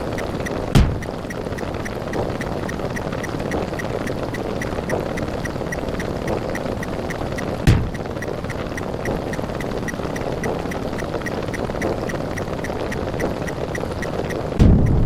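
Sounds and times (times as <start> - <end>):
layered sound effects: 0.0 - 15.0
rapid high ticks: 0.0 - 15.0
loud low thump: 0.8 - 1.1, 7.7 - 8.0, 14.6 - 15.0.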